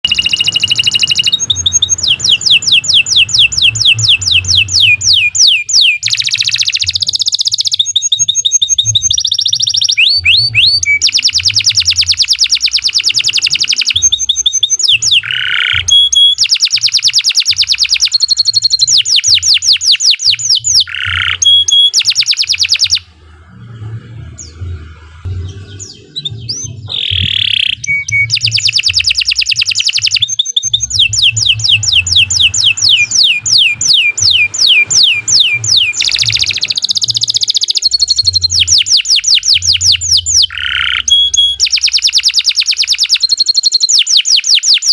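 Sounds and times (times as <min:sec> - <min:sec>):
canary calls: 0:00.0 - 0:44.9
canary singing trills: 0:00.0 - 0:44.9.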